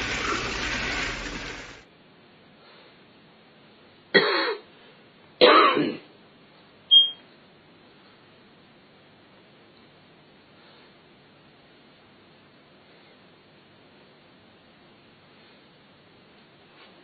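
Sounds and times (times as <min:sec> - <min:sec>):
parrot raspy coughing sounds: 0:04.2 - 0:04.7, 0:05.4 - 0:06.1.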